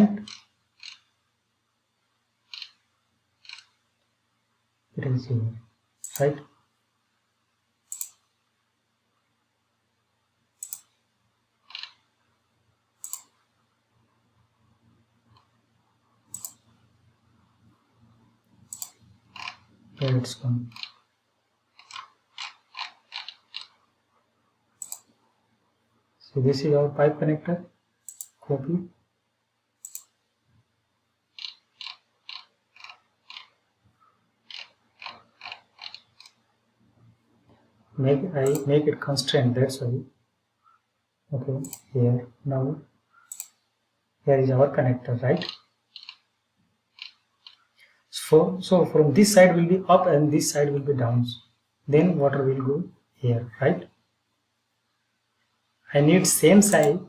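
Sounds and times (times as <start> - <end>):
computer mouse clicking: 0.2 - 1.1, 2.4 - 2.8, 3.4 - 3.8, 6.0 - 6.4, 7.9 - 8.3, 10.6 - 11.0, 11.6 - 12.1, 13.0 - 13.4, 16.3 - 16.8, 18.6 - 21.1, 21.7 - 23.8, 24.8 - 25.2, 28.0 - 28.4, 29.8 - 30.2, 31.3 - 33.6, 34.4 - 36.4, 38.4 - 38.7, 41.6 - 41.9, 43.2 - 43.6, 45.4 - 47.9, 56.6 - 57.0
small plastic clicks: 43.2 - 43.6, 45.4 - 47.9.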